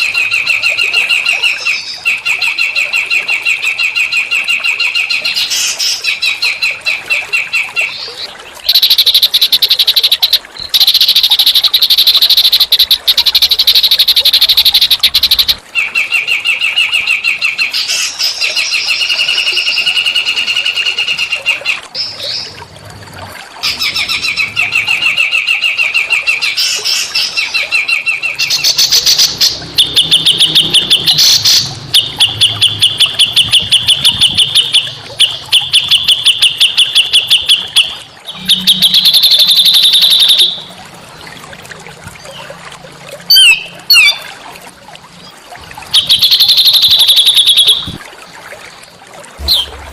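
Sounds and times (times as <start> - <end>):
songbird buzzy trills: 7.6 - 16.6, 23.6 - 40.8, 45.3 - 48.0, 49.4 - 49.9.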